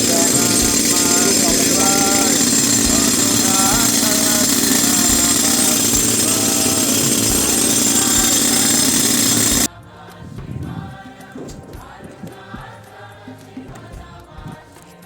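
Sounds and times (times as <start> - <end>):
pneumatic rock drill running: 0.0 - 9.7
choir music: 9.7 - 15.0.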